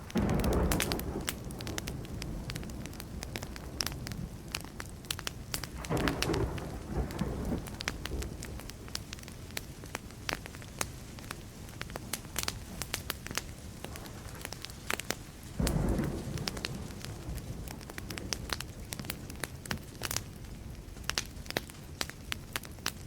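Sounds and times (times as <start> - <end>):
distant thunder rumbling: 0.0 - 9.2, 11.3 - 19.8
campfire crackling and popping: 0.0 - 23.0.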